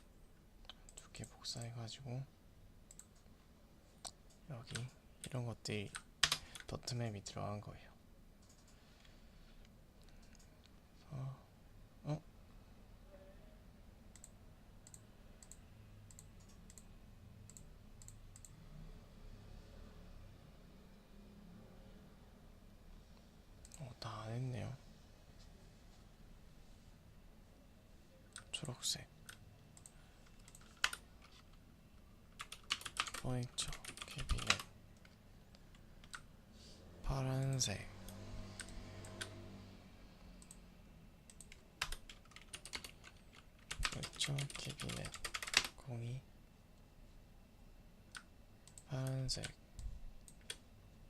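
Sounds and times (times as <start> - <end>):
low room hum: 0.0 - 51.0
computer mouse clicks: 2.9 - 3.3, 8.4 - 8.8, 9.6 - 10.8, 14.1 - 18.6, 28.3 - 31.6, 32.4 - 36.3, 37.4 - 39.4, 40.3 - 40.6, 41.3 - 45.7, 48.1 - 50.6.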